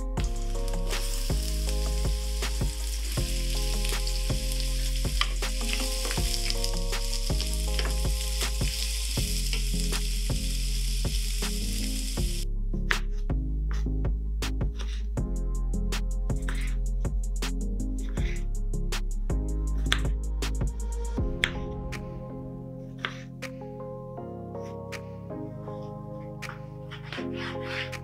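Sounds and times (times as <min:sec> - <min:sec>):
garlic and onion sizzling: 0:00.0 - 0:12.4
background music: 0:00.0 - 0:28.0.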